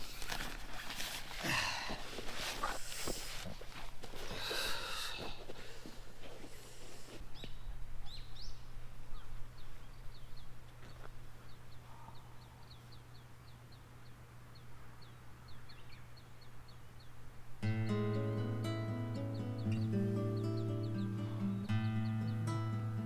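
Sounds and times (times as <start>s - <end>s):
small bird chirping: 7.3s - 17.2s, 19.2s - 22.6s
background music: 17.6s - 23.0s.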